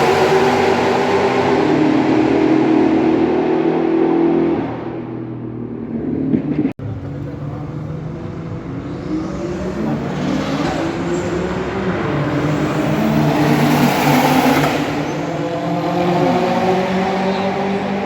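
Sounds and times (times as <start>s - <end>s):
racing car engines: 0.0s - 18.0s
racing car passing close: 7.8s - 18.0s.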